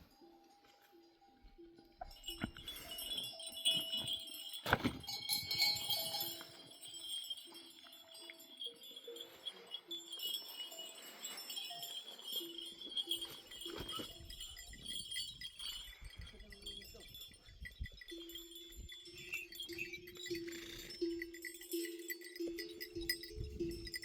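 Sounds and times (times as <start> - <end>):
animal bells clinking: 0.0 - 24.0.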